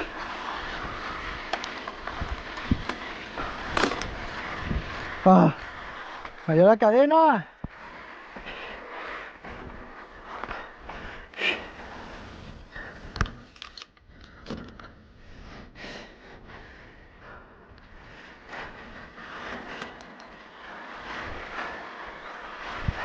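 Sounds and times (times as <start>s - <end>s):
mountain bike clicking and rattling: 0.0s - 6.6s, 18.1s - 23.0s.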